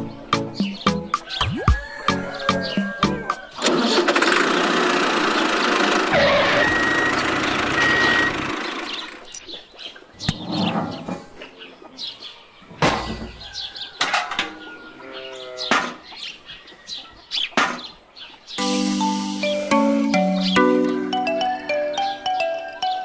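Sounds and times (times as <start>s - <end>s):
background music: 0.0s - 3.6s, 18.6s - 23.0s
bird chirps: 6.4s - 12.4s, 19.4s - 23.0s.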